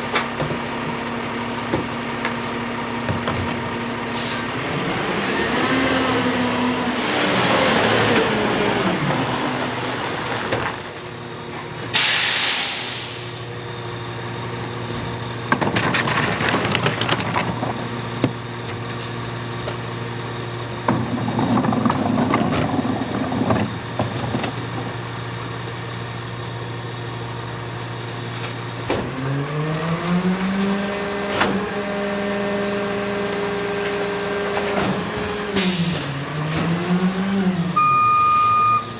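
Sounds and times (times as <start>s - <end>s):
carts clattering into hopper: 0.0s - 12.5s, 14.8s - 25.4s, 27.5s - 38.9s
garbage truck engine: 0.0s - 38.9s
air brake hiss: 4.1s - 4.5s, 12.0s - 13.5s, 35.6s - 36.2s.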